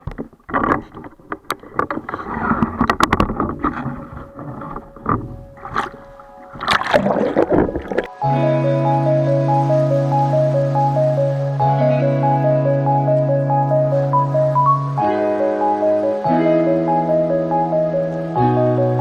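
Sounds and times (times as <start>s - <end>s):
sharp knocks and clicks: 0.0s - 6.8s
sea water splashing: 1.0s - 8.2s
music: 3.2s - 19.0s.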